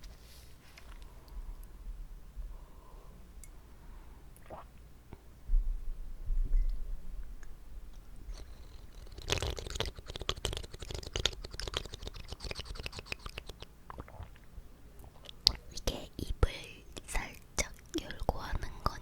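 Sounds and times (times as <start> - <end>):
wet mouth clicks and smacks: 7.4 - 15.6.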